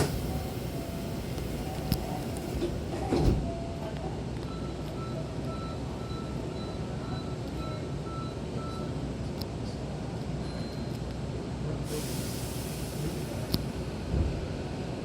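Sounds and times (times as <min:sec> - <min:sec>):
train doors thudding shut: 0:00.0 - 0:03.7, 0:14.0 - 0:14.6
train rumble: 0:00.0 - 0:10.4, 0:11.3 - 0:15.0.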